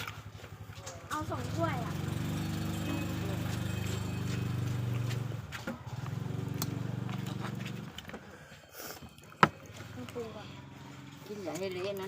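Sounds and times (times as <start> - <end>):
small engine running: 0.1 - 8.2.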